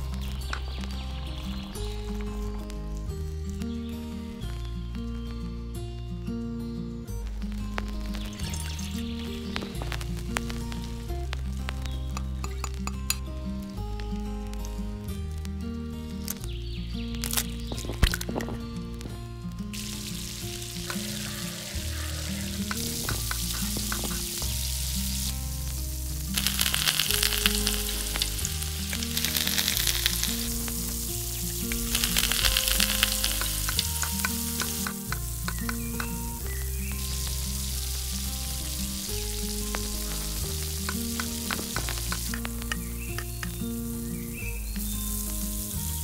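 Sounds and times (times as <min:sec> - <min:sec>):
soft background music: 0:00.0 - 0:46.0
food sizzling in oil: 0:07.2 - 0:15.0, 0:19.7 - 0:46.0.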